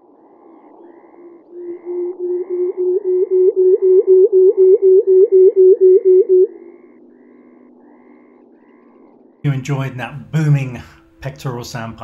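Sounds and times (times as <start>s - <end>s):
bird low hooting display call: 0.0s - 9.5s.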